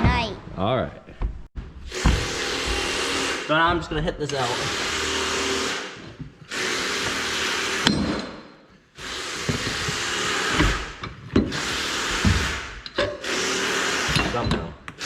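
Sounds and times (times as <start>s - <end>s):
power tool hammering metal pin: 9.3s - 15.0s.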